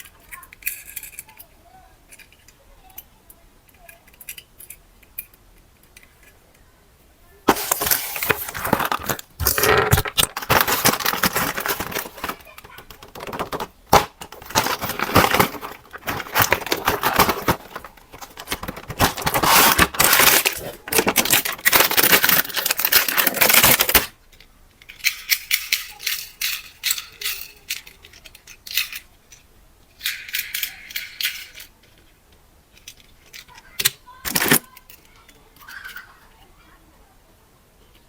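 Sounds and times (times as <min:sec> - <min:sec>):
plastic rattling and clicking: 0:07.5 - 0:29.4, 0:30.0 - 0:36.2.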